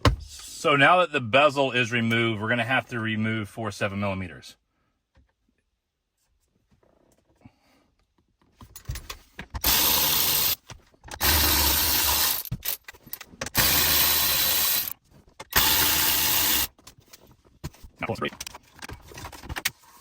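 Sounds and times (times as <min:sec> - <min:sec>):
power drill-driver running: 0:09.6 - 0:10.6, 0:11.2 - 0:12.7, 0:13.5 - 0:16.7.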